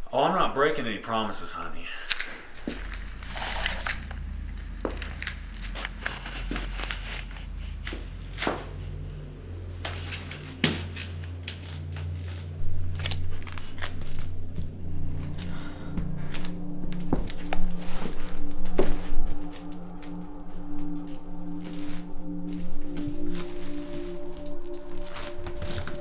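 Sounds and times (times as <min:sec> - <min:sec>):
sharp cracks and crunching clicks: 0:02.0 - 0:07.0, 0:12.9 - 0:17.8
low steady drone: 0:02.0 - 0:26.0.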